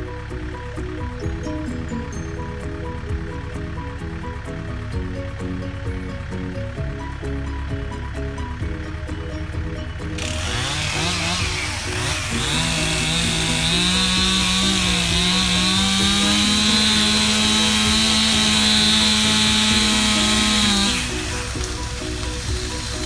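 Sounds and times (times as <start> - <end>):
background music: 0.0 - 23.0
chainsaw cutting at high revs: 10.2 - 23.0.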